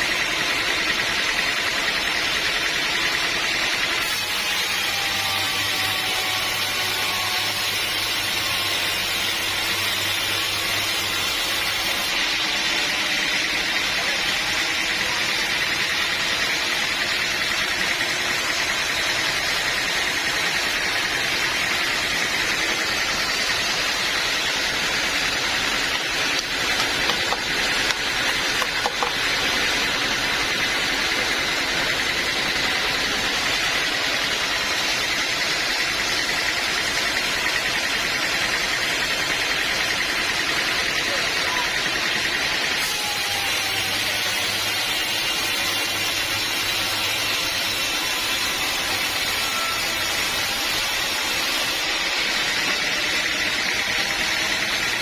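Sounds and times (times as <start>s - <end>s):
band sawmill running with whine: 0.0s - 55.0s.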